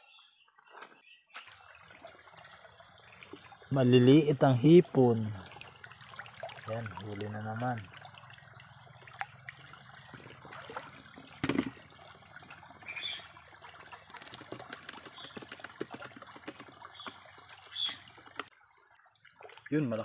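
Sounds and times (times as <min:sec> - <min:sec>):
hands splashing in stream water: 0:09.1 - 0:18.5.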